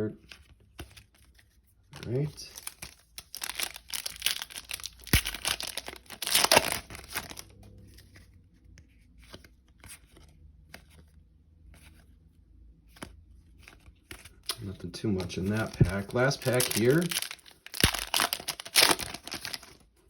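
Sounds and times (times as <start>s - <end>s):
cards being handled: 0.2s - 12.2s, 12.8s - 19.8s
foil wrapper crinkling and tearing: 2.0s - 7.5s, 14.4s - 19.8s.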